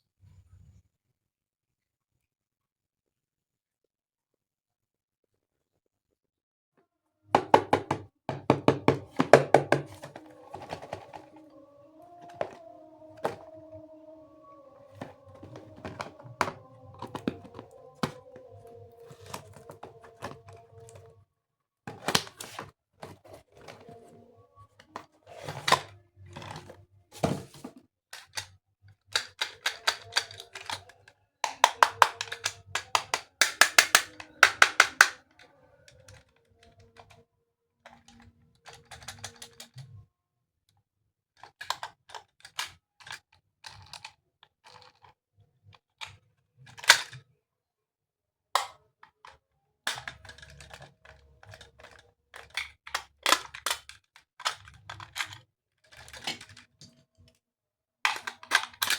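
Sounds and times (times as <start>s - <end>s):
plastic toy parts clicking: 7.4s - 11.5s, 12.2s - 13.5s, 28.2s - 35.2s, 37.9s - 40.0s, 41.4s - 45.2s, 45.8s - 47.2s, 48.6s - 56.8s, 58.1s - 58.9s.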